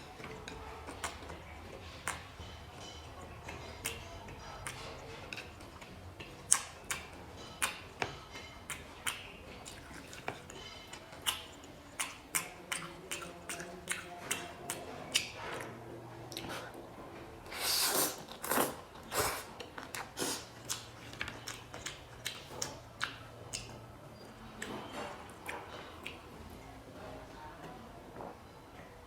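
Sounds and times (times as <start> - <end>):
wet chewing with mouth clicks: 0.0 - 16.8, 17.5 - 26.6
noodle slurp: 17.5 - 20.8.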